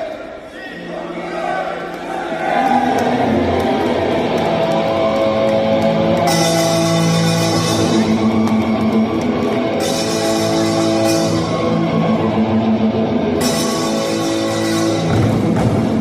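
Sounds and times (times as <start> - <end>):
drums: 3.5 - 16.0.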